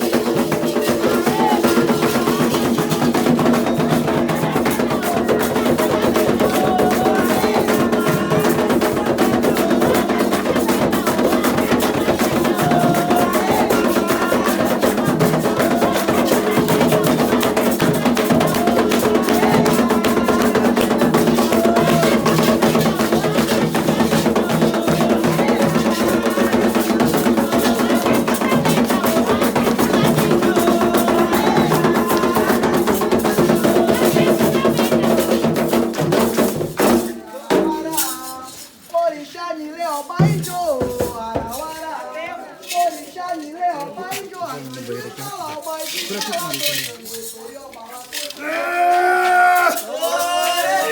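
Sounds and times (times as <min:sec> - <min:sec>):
bell-like clicking percussion: 0:00.0 - 0:36.6
hand drums playing fast rhythm: 0:00.0 - 0:38.5, 0:40.1 - 0:41.8
chanted voices: 0:00.0 - 0:38.6, 0:48.2 - 0:50.9.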